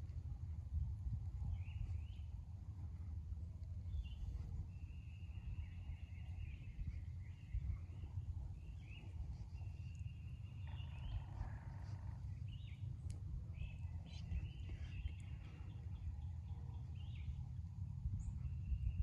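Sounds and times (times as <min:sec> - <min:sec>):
low rumble: 0:00.0 - 0:19.0
wild birds whistling: 0:03.9 - 0:12.9, 0:13.5 - 0:17.6.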